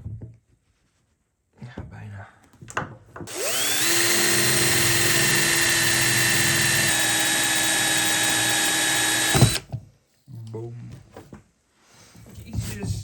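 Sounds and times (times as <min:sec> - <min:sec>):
power tool whining: 0:03.3 - 0:09.7.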